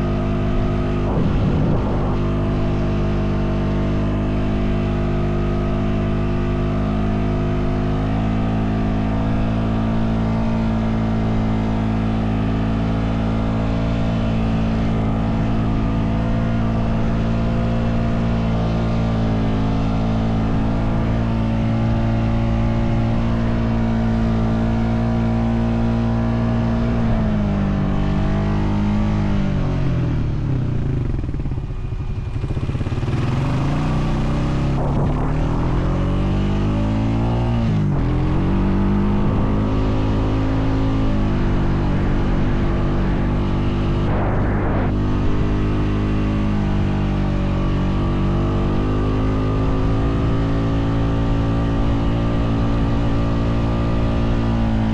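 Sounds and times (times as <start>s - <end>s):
atv engine running under load: 0.0s - 26.0s, 26.8s - 54.9s.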